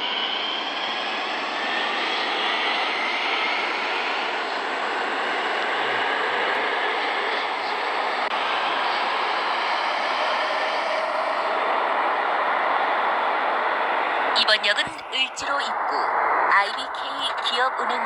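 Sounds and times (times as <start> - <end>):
train wheels roaring on rails: 0.0 - 18.0.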